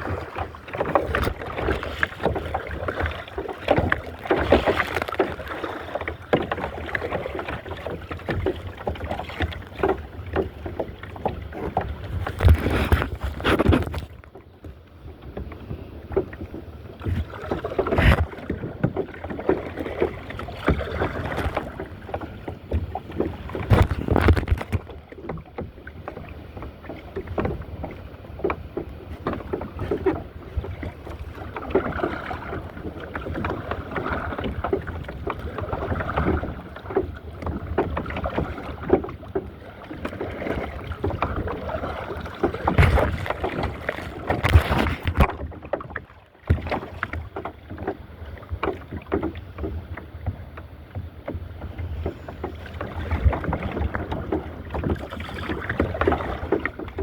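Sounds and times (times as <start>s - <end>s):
paddle splashing and dripping: 0.0s - 57.0s
louder knocks or splashes: 42.4s - 45.6s.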